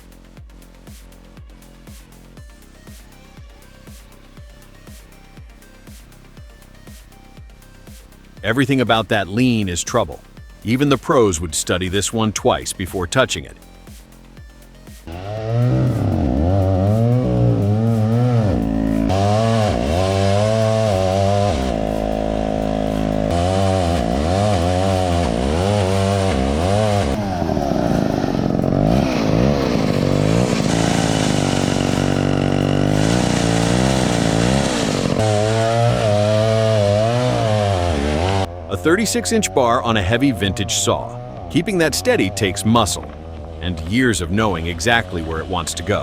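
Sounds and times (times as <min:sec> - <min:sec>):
chainsaw cutting a tree: 0:14.8 - 0:46.0.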